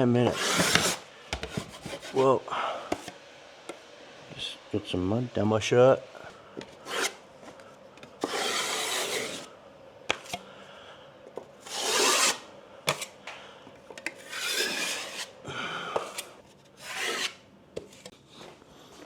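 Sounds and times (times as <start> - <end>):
blade scraping cement on drywall: 0.2 - 2.4, 6.8 - 7.2, 8.2 - 9.5, 11.6 - 13.1, 14.1 - 15.4, 16.0 - 17.4.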